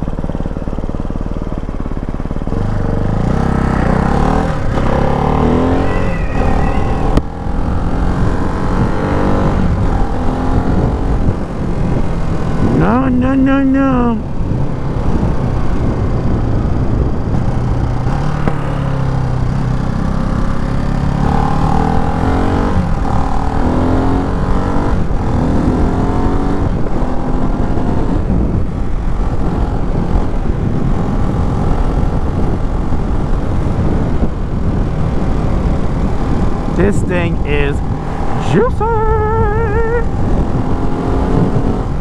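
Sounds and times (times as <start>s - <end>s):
motorcycle engine accelerating: 0.0s - 42.0s
wind rush: 4.3s - 12.7s.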